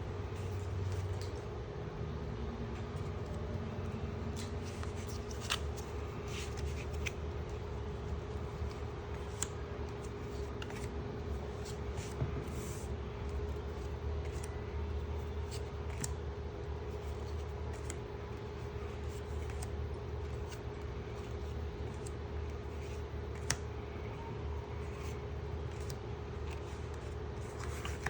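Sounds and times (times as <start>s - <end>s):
low electrical hum: 0.0s - 28.0s
trading cards being flipped: 2.8s - 16.2s, 17.0s - 23.6s, 24.8s - 28.0s
clicks of card edges: 22.8s - 23.6s.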